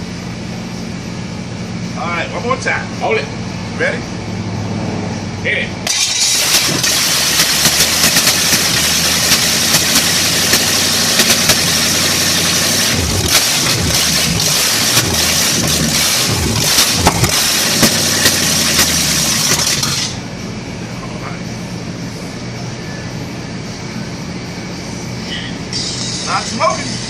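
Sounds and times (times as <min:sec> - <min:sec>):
car engine revving: 0:04.2 - 0:20.2.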